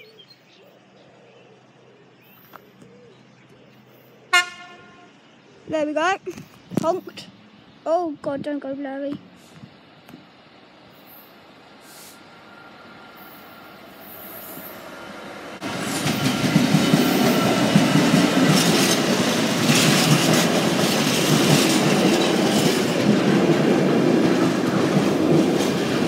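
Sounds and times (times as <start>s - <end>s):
train wheels clattering over rails: 15.6s - 26.0s.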